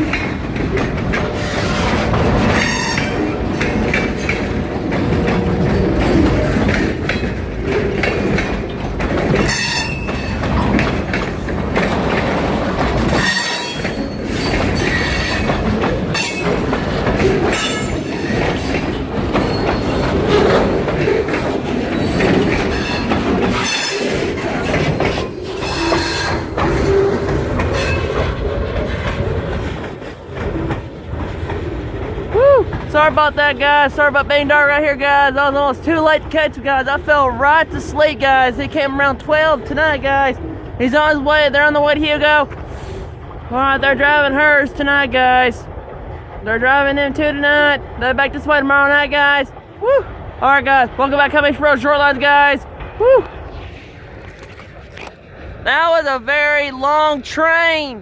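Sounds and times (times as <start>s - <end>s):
steel wheels rumbling: 0.0s - 58.0s
wheels clicking over rail joints: 0.0s - 58.0s
wheel squeal: 2.6s - 3.2s, 9.4s - 10.5s, 13.1s - 15.5s, 17.5s - 20.4s, 25.2s - 28.1s.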